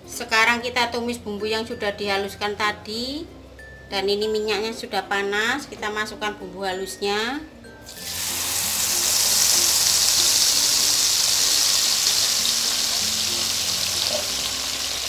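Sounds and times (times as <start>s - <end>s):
paste sizzling in hot oil: 7.8s - 15.0s.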